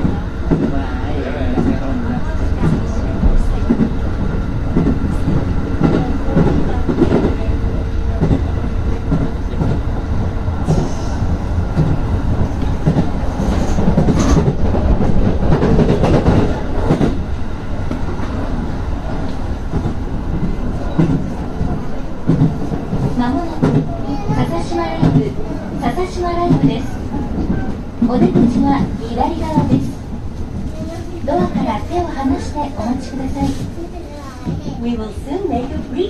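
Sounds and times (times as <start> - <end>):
train running gear rumble: 0.0 - 36.0.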